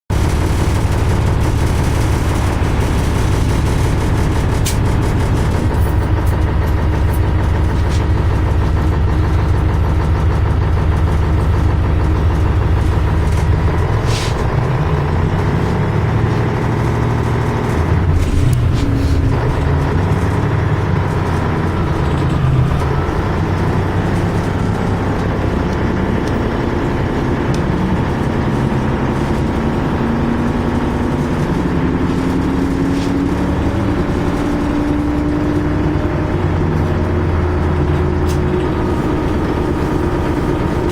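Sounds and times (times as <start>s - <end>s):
bus diesel engine running: 0.1s - 40.9s.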